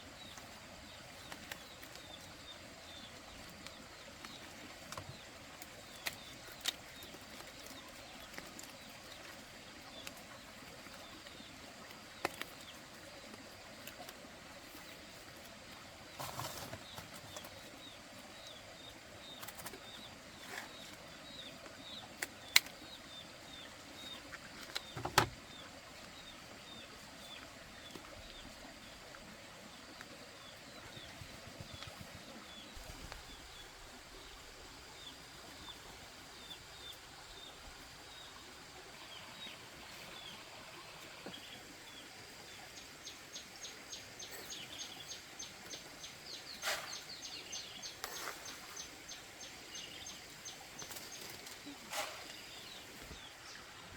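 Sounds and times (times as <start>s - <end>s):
bird chirping: 41.2s - 53.7s.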